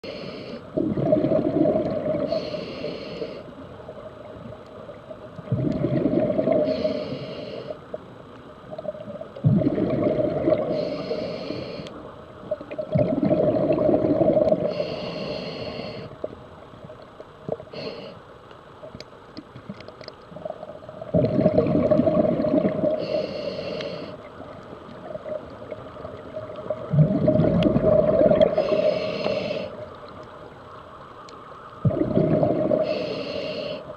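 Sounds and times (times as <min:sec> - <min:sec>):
diver breathing through regulator: 0:00.0 - 0:00.7, 0:02.1 - 0:03.5, 0:06.5 - 0:07.8, 0:10.6 - 0:12.0, 0:14.4 - 0:16.2, 0:17.7 - 0:18.2, 0:22.8 - 0:24.2, 0:28.2 - 0:29.8, 0:32.6 - 0:33.9
bubbling exhale: 0:12.9 - 0:16.2, 0:26.7 - 0:29.8, 0:31.8 - 0:33.9.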